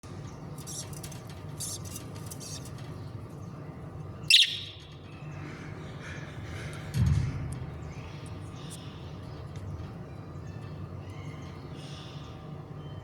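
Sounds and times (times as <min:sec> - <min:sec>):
budgerigar chicks chirping: 0:04.3 - 0:04.9.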